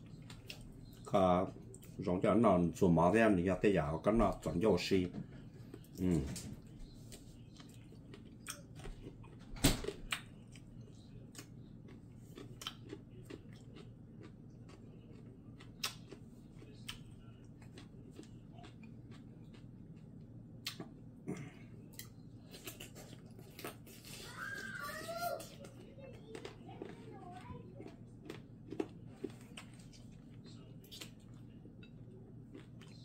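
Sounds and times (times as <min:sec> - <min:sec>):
faint low hum: 0:00.0 - 0:33.0
chewing clicks and mouth smacks: 0:07.1 - 0:21.0, 0:21.9 - 0:24.2, 0:25.4 - 0:33.0.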